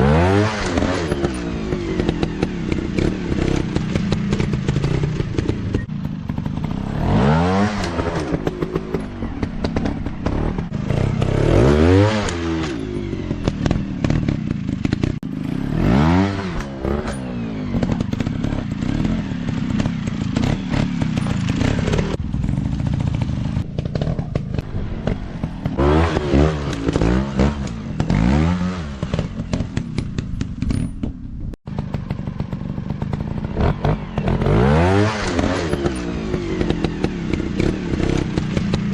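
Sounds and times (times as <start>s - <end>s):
dirt bike engines revving: 0.0s - 30.7s, 31.7s - 38.9s
clatter and knocks: 29.0s - 34.0s.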